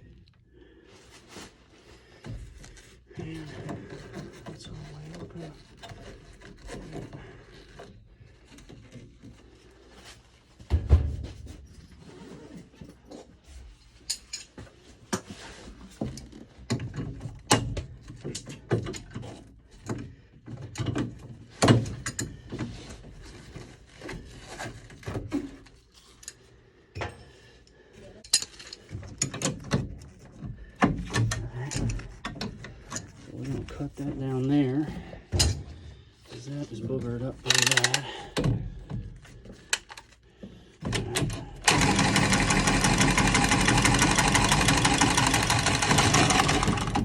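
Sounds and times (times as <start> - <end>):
heavy thump: 10.6 - 11.7
tools clicking and clattering: 14.0 - 15.3, 28.2 - 34.0, 37.3 - 39.0, 40.8 - 47.0.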